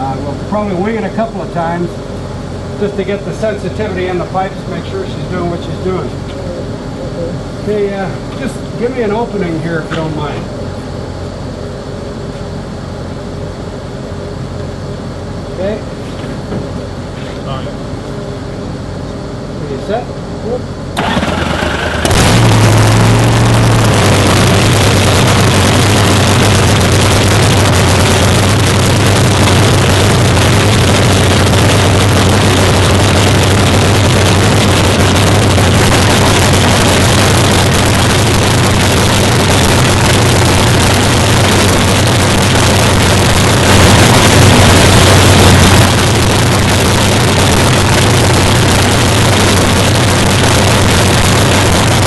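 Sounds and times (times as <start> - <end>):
loud vee eight engine idle: 20.6 - 52.0
engine revving: 21.0 - 52.0.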